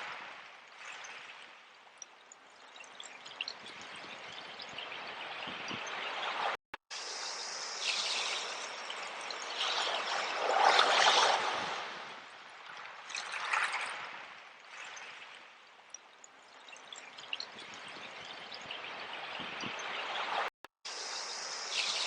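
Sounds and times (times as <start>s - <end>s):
sea water washing in: 5.8s - 15.5s.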